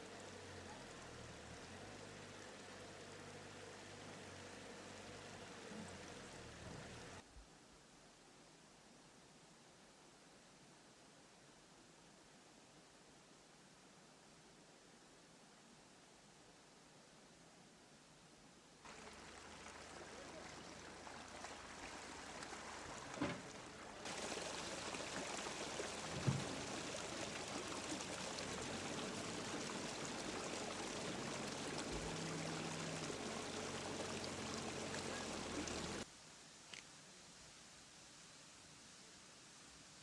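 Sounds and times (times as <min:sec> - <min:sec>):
floodwater rushing: 0:00.0 - 0:07.2, 0:18.8 - 0:36.1.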